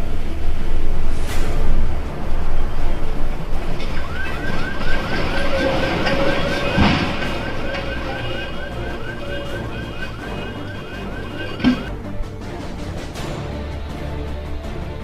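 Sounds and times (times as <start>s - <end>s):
low rumbling noise: 0.0s - 15.0s
vehicle alarm chirping: 3.6s - 11.9s.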